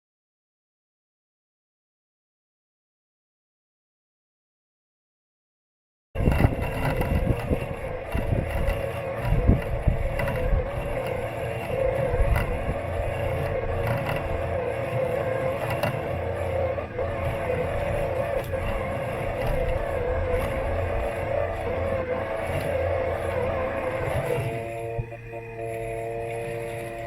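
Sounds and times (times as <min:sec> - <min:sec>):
robot lawn mower motor hum: 0:06.2 - 0:27.0.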